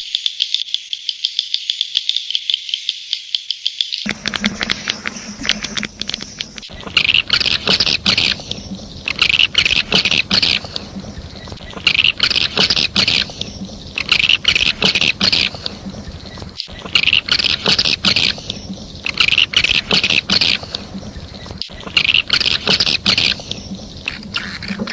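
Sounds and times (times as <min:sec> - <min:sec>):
rapid bird clicking: 0:00.2 - 0:24.9
high buzzy twittering chirps: 0:04.1 - 0:24.9.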